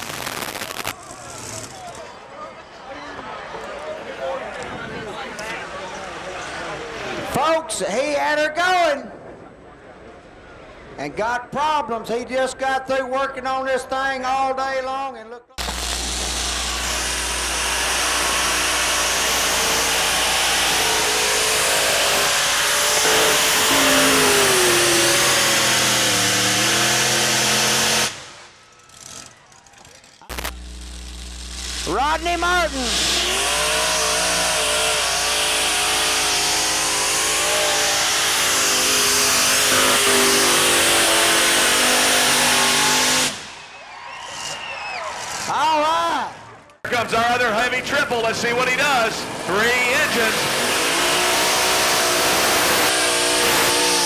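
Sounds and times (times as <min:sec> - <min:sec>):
tractor engines running: 0:00.1 - 0:02.3, 0:15.6 - 0:43.4.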